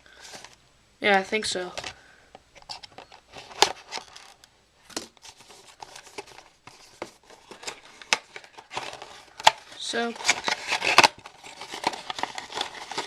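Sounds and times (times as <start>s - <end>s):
plastic wrap crinkling: 5.2s - 13.0s
cardboard box scraping: 10.0s - 13.0s.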